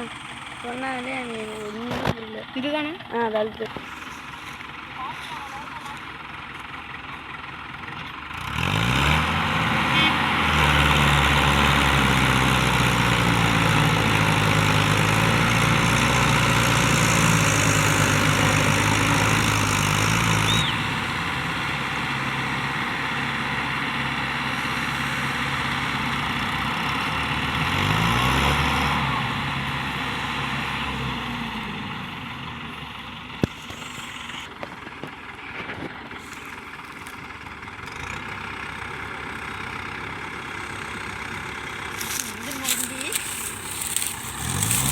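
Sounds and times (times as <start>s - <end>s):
tractor engine labouring: 0.0s - 44.9s.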